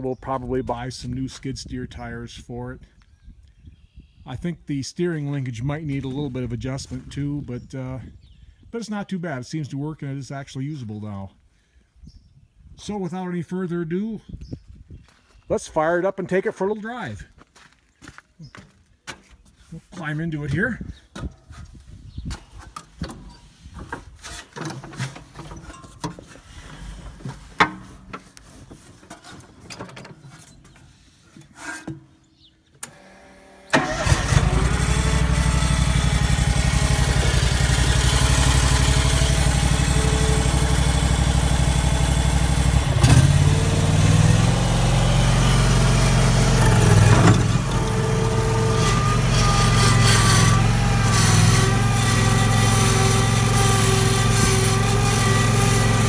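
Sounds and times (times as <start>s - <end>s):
skid steer engine running: 32.8s - 56.0s.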